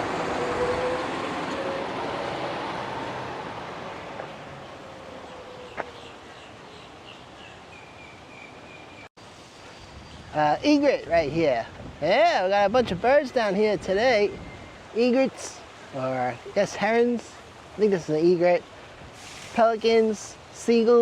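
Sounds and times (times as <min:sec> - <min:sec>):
boat engine: 0:00.0 - 0:05.8
rushing wash: 0:00.0 - 0:07.7, 0:09.2 - 0:21.0.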